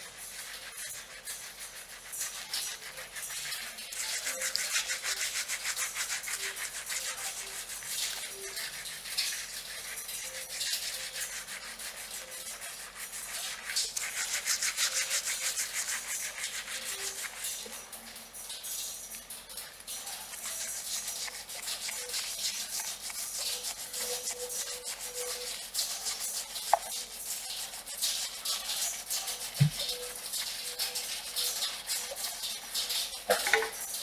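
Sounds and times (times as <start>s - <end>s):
fingernails scratching hair: 29.4s - 30.3s.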